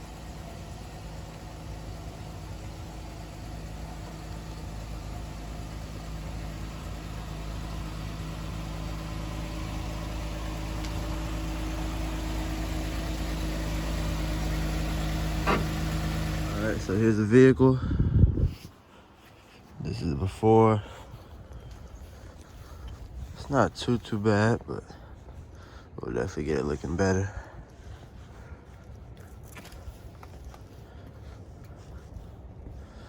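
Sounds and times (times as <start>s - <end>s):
engine humming steadily: 0.0s - 33.0s.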